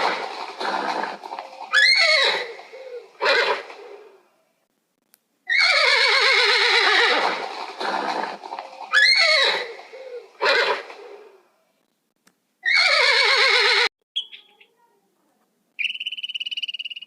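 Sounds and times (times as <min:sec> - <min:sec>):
animal calling: 0:00.0 - 0:04.2, 0:05.5 - 0:11.4.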